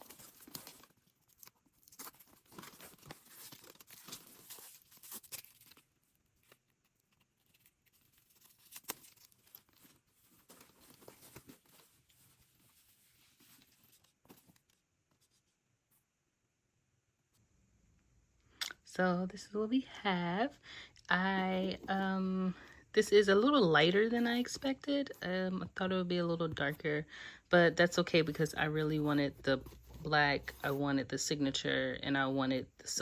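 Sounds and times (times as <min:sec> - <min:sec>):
packaging rustling and tearing: 0:00.0 - 0:14.8.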